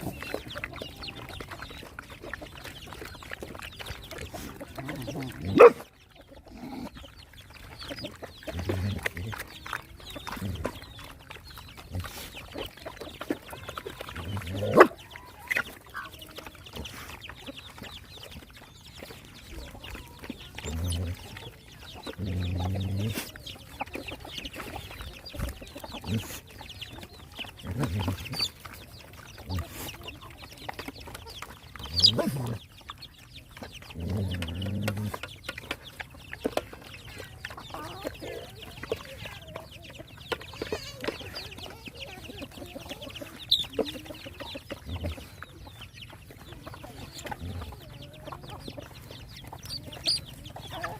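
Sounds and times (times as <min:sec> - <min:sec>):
chickens clucking: 0:00.0 - 0:50.9.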